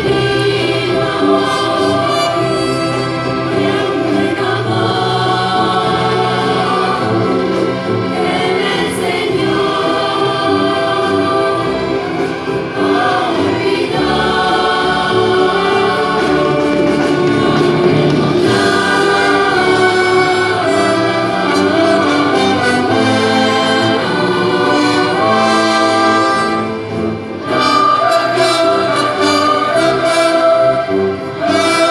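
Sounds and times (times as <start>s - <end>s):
choir singing held chords: 0.0s - 31.9s
orchestra playing: 0.0s - 31.9s.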